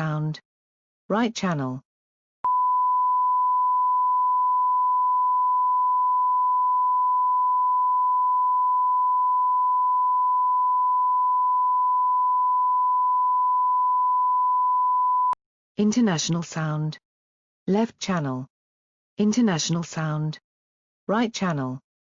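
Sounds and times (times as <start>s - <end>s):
sine-wave test tone: 2.4s - 15.4s.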